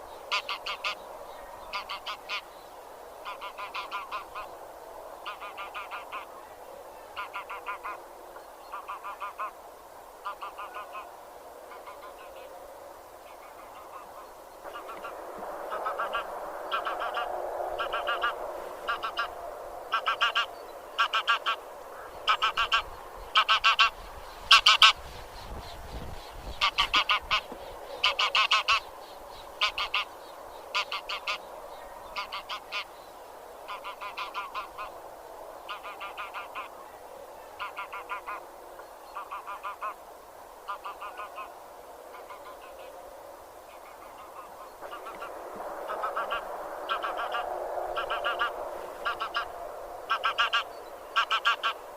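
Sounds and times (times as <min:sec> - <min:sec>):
distant calling of flock: 0:00.0 - 0:02.6, 0:03.2 - 0:04.6, 0:05.2 - 0:09.6, 0:10.2 - 0:12.5, 0:13.2 - 0:35.0, 0:35.6 - 0:40.0, 0:40.6 - 0:43.0, 0:43.7 - 0:51.9
geese honking: 0:00.3 - 0:01.0, 0:01.7 - 0:02.4, 0:03.2 - 0:04.5, 0:05.2 - 0:06.3, 0:07.2 - 0:08.0, 0:08.7 - 0:09.6, 0:10.2 - 0:11.1, 0:13.4 - 0:25.0, 0:26.6 - 0:28.9, 0:29.6 - 0:30.1, 0:30.7 - 0:31.4, 0:32.1 - 0:32.9, 0:33.7 - 0:35.0, 0:35.7 - 0:36.7, 0:37.6 - 0:38.4, 0:39.2 - 0:40.0, 0:43.8 - 0:51.9.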